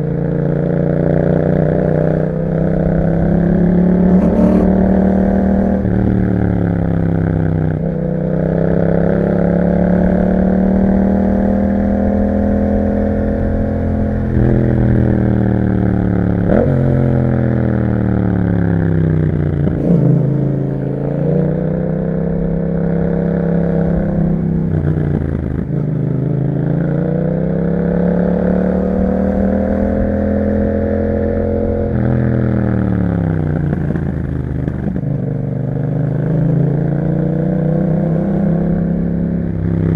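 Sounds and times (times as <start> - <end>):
motorcycle engine revving: 0.4 - 39.9.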